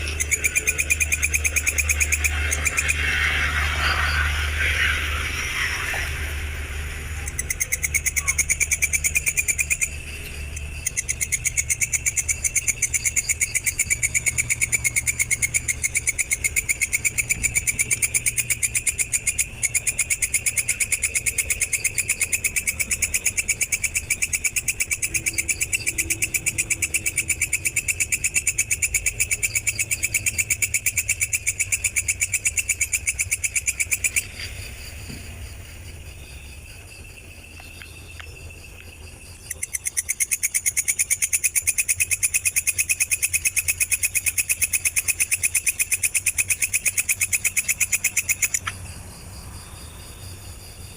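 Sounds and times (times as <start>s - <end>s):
low hum: 0.0s - 40.0s
insect trilling: 0.0s - 50.9s.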